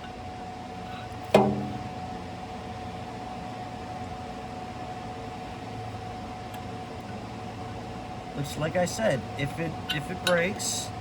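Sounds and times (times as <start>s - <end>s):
steady hum: 0.0s - 11.0s
metallic clank: 1.4s - 2.1s.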